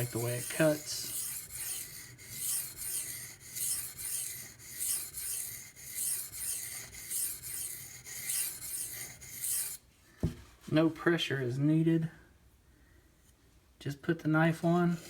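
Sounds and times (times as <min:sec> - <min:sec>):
knife scraping on whetstone: 0:00.0 - 0:09.8.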